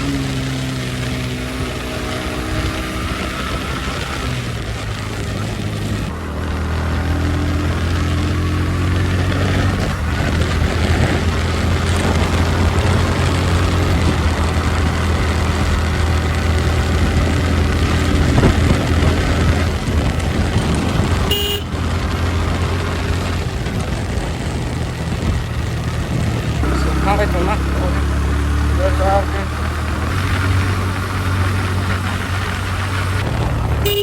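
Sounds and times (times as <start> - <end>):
motorcycle engine drone: 0.0 - 34.0
wind and road noise: 0.0 - 34.0
horn toot: 21.3 - 21.8.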